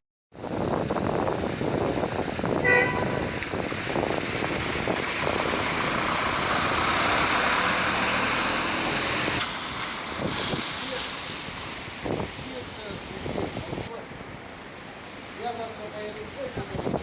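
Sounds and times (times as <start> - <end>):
vehicles driving through water: 0.4 - 17.0
car horn toot: 2.6 - 3.4.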